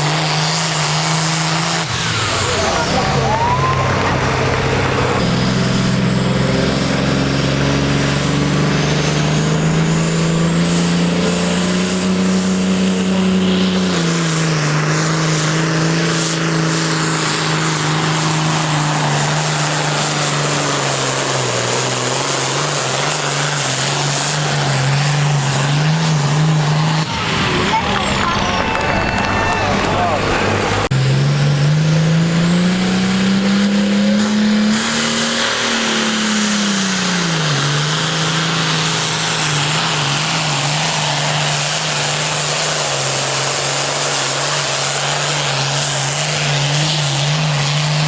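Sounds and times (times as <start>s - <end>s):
tractor engine under load: 0.0s - 48.0s
high whine: 26.1s - 34.7s.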